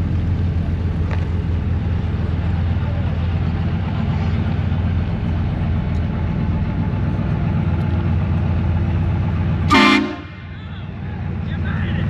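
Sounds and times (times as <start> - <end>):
vehicle engine rumbling: 0.0 - 12.0
horn blast: 9.7 - 10.4.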